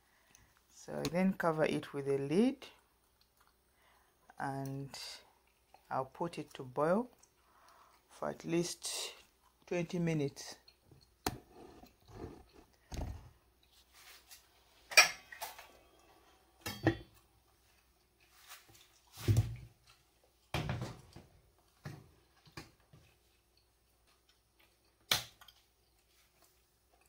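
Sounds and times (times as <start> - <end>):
pot and utensils clattering: 16.6 - 17.2.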